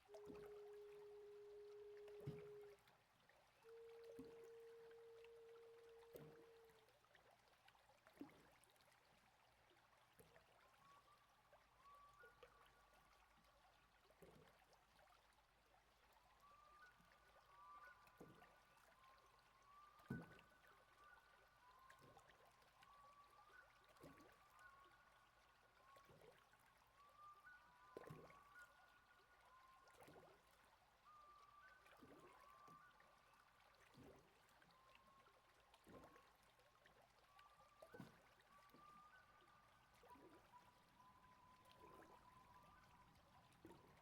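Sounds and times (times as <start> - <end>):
soft pulse: 0.0 - 2.8, 3.6 - 6.9
flowing river water: 0.0 - 44.0.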